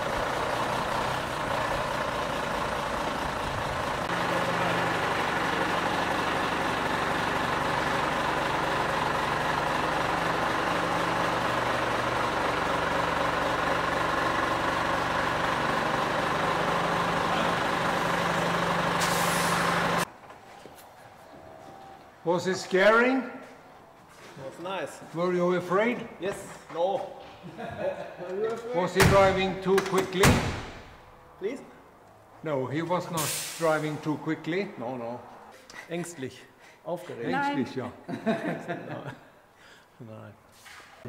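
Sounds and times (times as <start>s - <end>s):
diesel truck engine running: 0.0s - 20.3s
short air hiss: 19.0s - 19.7s, 33.2s - 33.8s, 40.5s - 41.0s.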